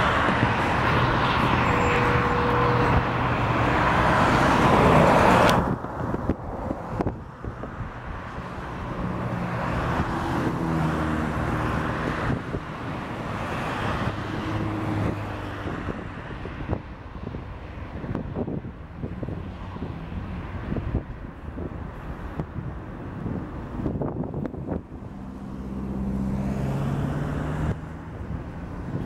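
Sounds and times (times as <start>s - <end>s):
jet engines roaring: 0.0s - 7.2s.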